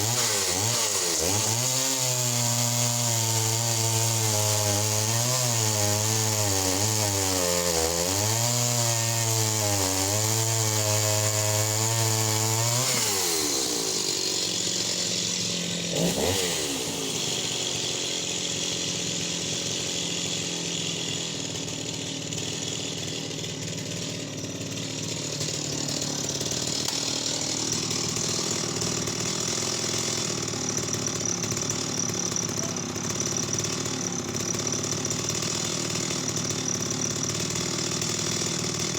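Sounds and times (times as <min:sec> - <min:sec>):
chainsaw cutting through log: 0:00.0 - 0:38.9.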